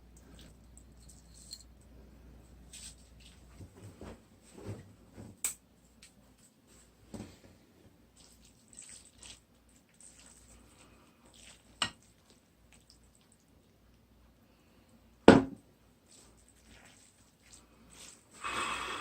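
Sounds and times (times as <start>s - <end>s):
slurping and chewing noodles: 8.2s - 13.5s.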